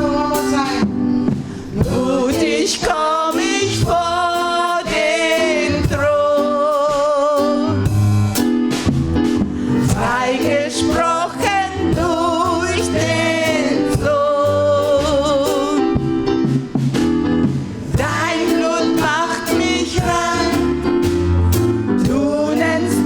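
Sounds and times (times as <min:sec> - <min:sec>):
guitar: 0:00.0 - 0:01.9
gospel singers with vibrato: 0:00.0 - 0:08.0, 0:09.6 - 0:16.5, 0:17.8 - 0:23.0
bass: 0:00.0 - 0:23.0.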